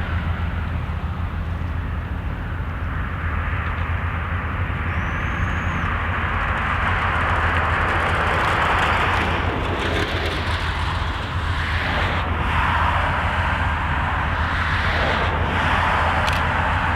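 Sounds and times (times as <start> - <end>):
diesel locomotive engine drone: 0.0 - 16.9
train rushing noise: 0.0 - 16.9
brief high squeal: 4.9 - 5.9.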